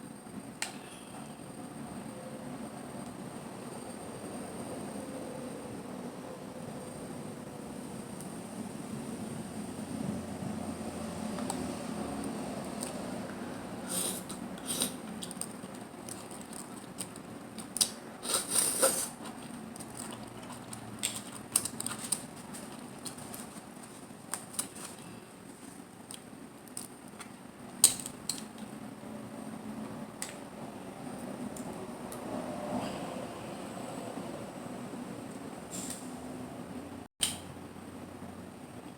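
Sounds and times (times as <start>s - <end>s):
chewing and mouth sounds: 14.2s - 23.7s, 26.0s - 28.6s.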